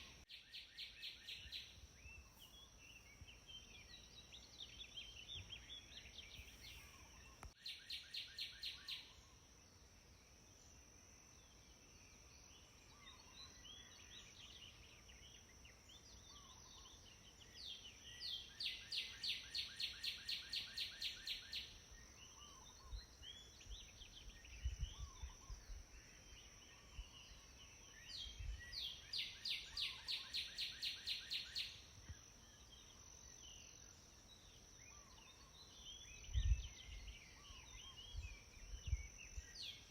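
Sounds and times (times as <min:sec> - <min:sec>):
faint bird chirps: 0:00.0 - 0:39.9.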